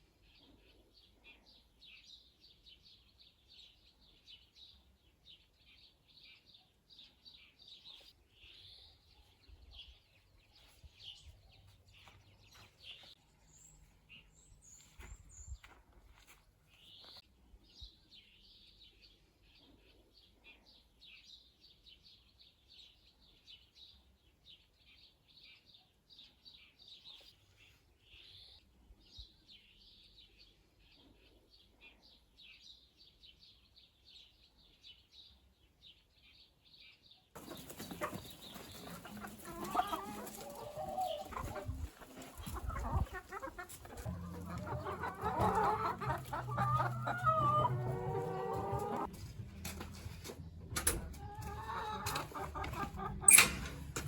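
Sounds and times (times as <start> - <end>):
songbirds chirping: 0.0 - 54.0
chickens clucking: 37.4 - 54.0.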